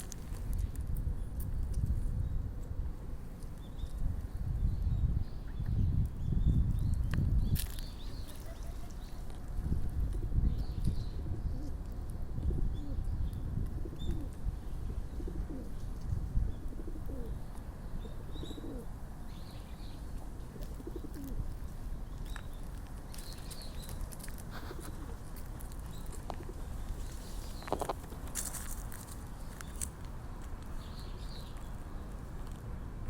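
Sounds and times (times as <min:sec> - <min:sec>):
pigeons cooing: 0:08.2 - 0:09.2, 0:12.5 - 0:15.9, 0:16.6 - 0:17.4, 0:18.0 - 0:19.0, 0:20.4 - 0:21.4, 0:24.5 - 0:25.3.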